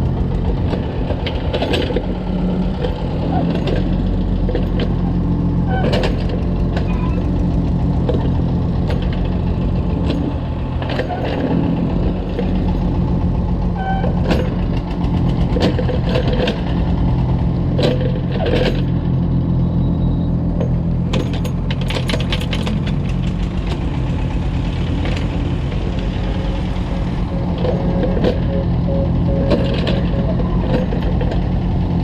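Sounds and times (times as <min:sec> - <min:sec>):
excavator diesel engine running: 0:00.0 - 0:32.0
metallic clanks and knocks: 0:13.9 - 0:16.8, 0:20.6 - 0:24.2, 0:27.4 - 0:31.6.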